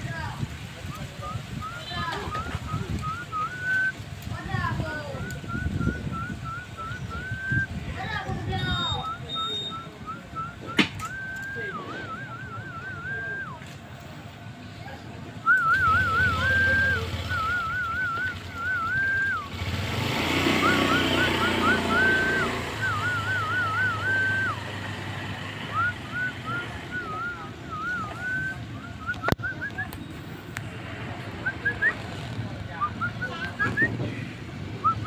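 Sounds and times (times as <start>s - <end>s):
bird whistling phrases: 1.2s - 4.0s, 4.9s - 7.8s, 8.5s - 13.6s, 15.5s - 24.8s, 25.6s - 30.2s.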